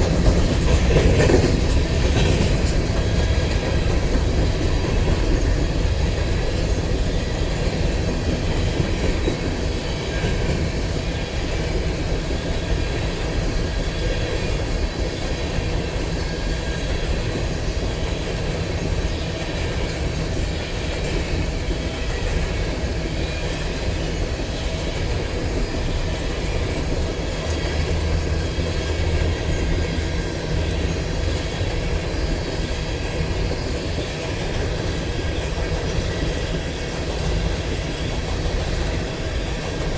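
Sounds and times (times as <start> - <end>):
clickety-clack over rail joints: 0.0 - 39.9
train wheels rumbling on rails: 0.0 - 39.9.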